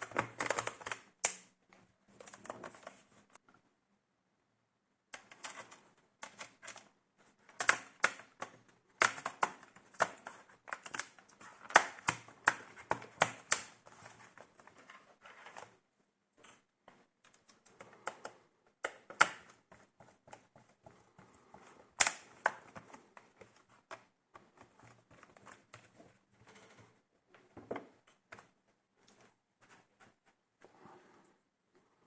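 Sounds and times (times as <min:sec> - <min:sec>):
plastic laptop parts clicking: 0:00.0 - 0:01.5, 0:05.2 - 0:14.8, 0:17.2 - 0:20.5, 0:21.9 - 0:25.9.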